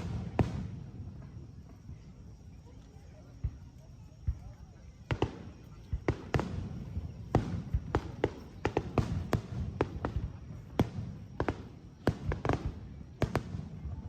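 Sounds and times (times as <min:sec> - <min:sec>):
fireworks bangs: 0:00.0 - 0:02.2, 0:03.4 - 0:14.0.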